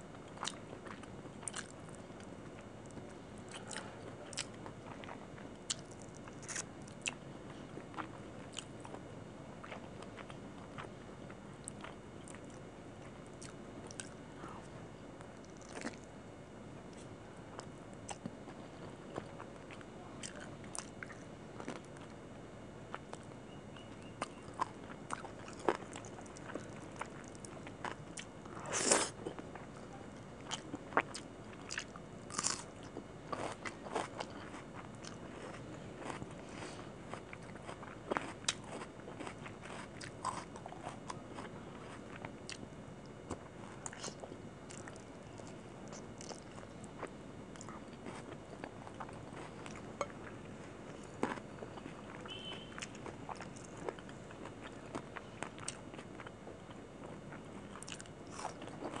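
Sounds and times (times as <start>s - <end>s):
chewing and crunching food: 0.1s - 16.2s, 16.8s - 22.2s, 22.8s - 59.0s.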